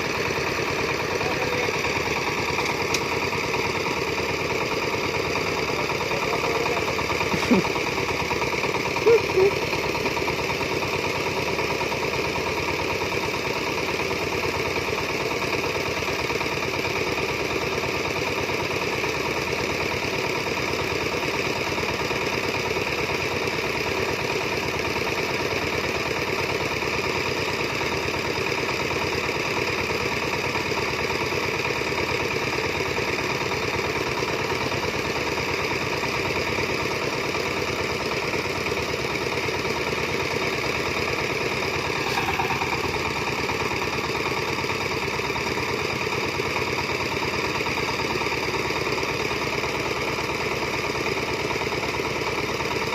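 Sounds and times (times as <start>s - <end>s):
diesel engine running steadily: 0.0s - 52.9s.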